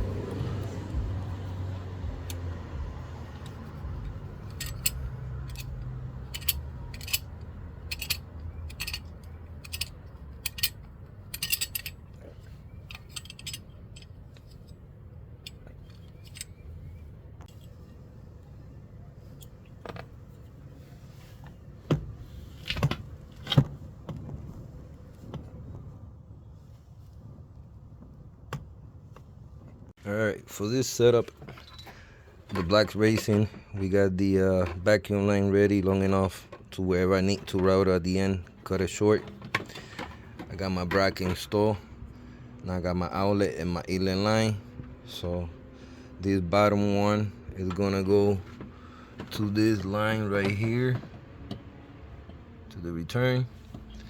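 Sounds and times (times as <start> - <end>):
metal parts and tools clinking: 0.6 - 18.0.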